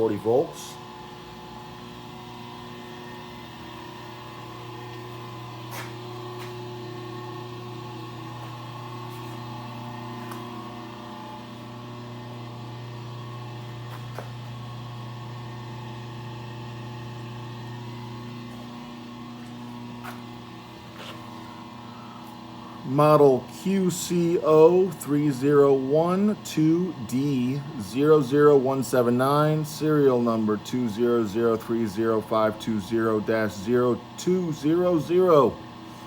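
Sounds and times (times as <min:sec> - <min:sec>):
electrical hum: 0:00.0 - 0:36.0.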